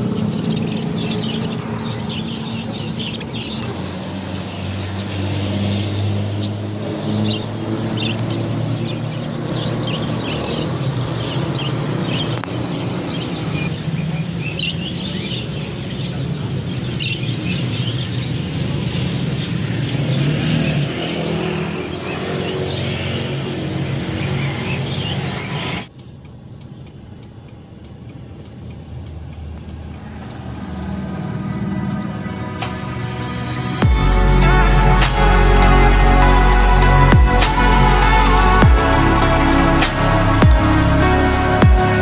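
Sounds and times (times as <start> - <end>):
caged birds chirping: 0.0 - 28.0
steady low hum: 31.0 - 42.0.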